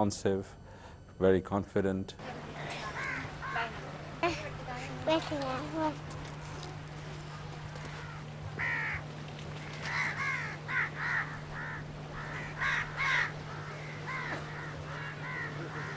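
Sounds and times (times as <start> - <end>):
steady low hum: 0.0 - 15.9
crows cawing: 2.6 - 4.9, 7.2 - 15.9.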